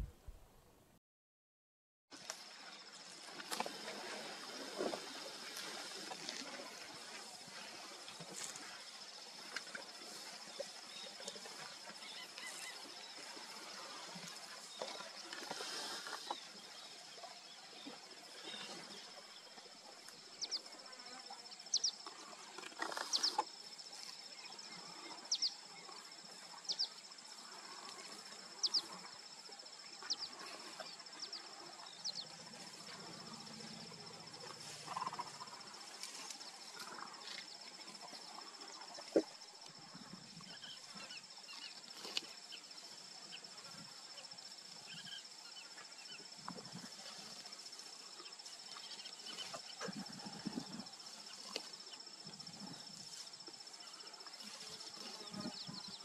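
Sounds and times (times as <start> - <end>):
high-pitched insect whine: 23.0 - 56.0.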